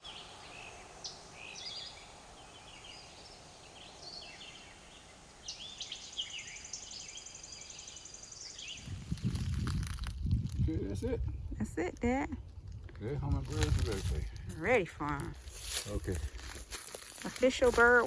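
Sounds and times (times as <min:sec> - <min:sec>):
steady background hiss: 0:00.0 - 0:08.8
wild birds chirping and whistling: 0:00.0 - 0:09.8.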